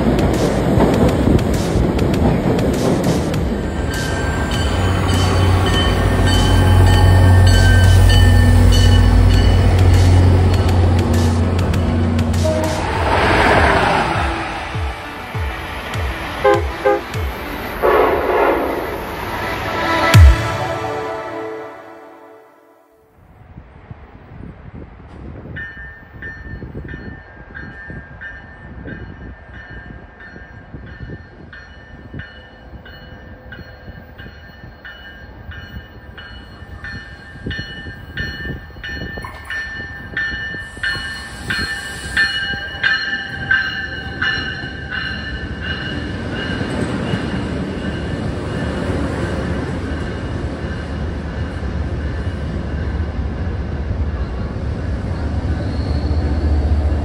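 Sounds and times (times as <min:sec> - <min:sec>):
train rumbling in: 0:00.0 - 0:22.8
train bell ringing: 0:03.6 - 0:11.7, 0:25.6 - 0:52.9.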